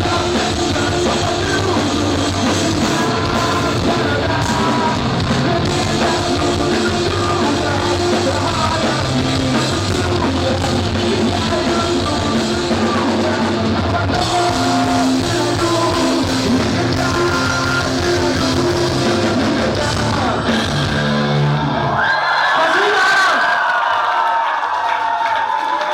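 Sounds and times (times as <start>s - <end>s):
person singing: 0.0s - 20.9s
rock band playing: 0.0s - 22.1s.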